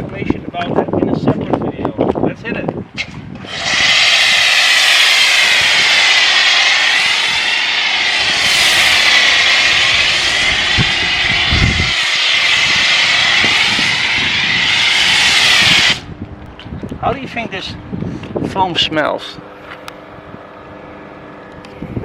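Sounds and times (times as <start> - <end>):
pressure washer whine and hiss: 3.4 - 16.1.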